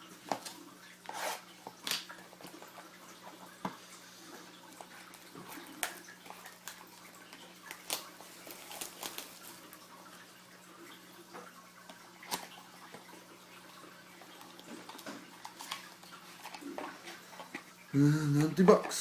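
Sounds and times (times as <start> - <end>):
faint steady hum: 0.0 - 19.0
cardboard packaging being opened: 4.8 - 9.6.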